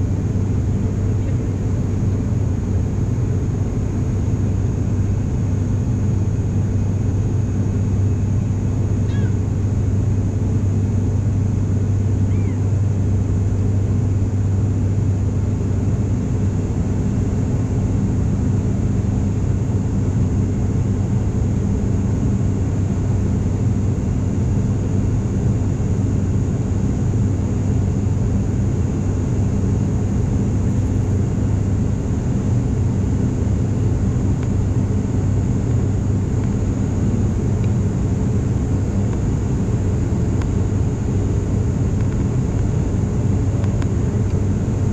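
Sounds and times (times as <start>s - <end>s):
turboprop drone in cabin: 0.0s - 44.9s
faint high whine: 6.7s - 14.4s.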